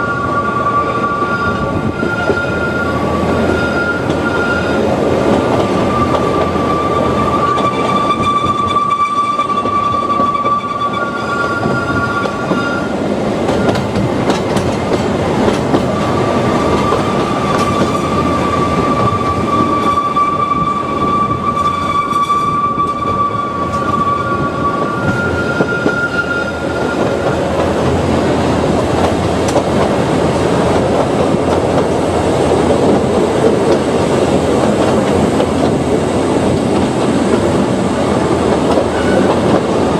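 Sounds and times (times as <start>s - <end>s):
high-pitched wheel squeals: 0.0s - 4.9s, 5.7s - 14.0s, 16.1s - 27.5s
train running over rails: 0.0s - 39.9s.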